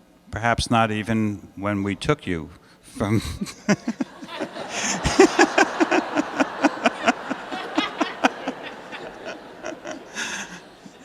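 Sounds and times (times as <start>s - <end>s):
person laughing: 3.0s - 11.0s.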